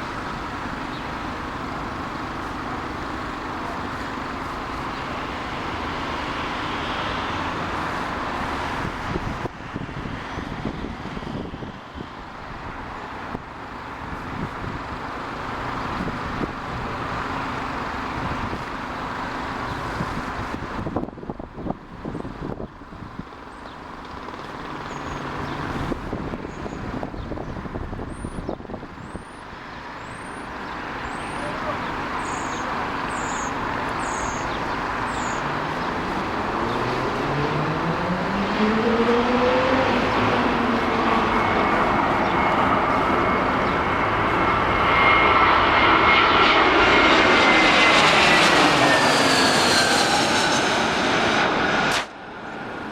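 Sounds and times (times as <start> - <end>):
jet airliner engine rushing: 0.0 - 23.2, 24.0 - 52.9
wind gusting on microphone: 7.6 - 18.8, 19.6 - 23.4, 25.2 - 29.7, 32.0 - 52.9
humming tones rising in pitch: 35.4 - 46.6.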